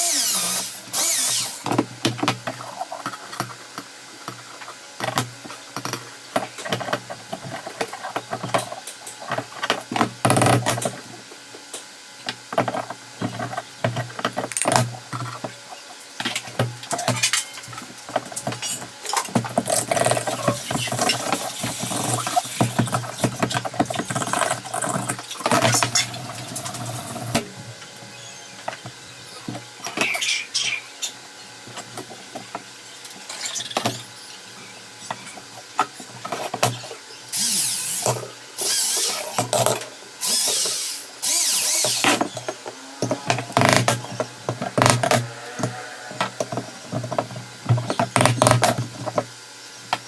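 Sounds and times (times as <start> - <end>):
small power drill running: 0.0 - 1.7, 37.3 - 39.6, 40.2 - 42.5
knocks and clicks of handwork: 46.3 - 49.3.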